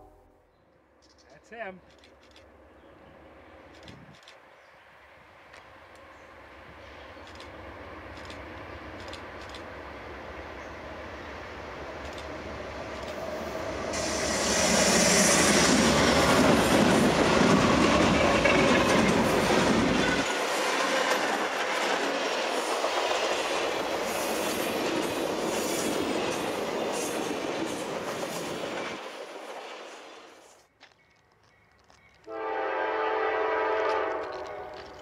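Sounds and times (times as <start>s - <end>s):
diesel locomotives rumbling: 5.8s - 29.4s
wheels clacking over rail joints: 15.7s - 29.1s.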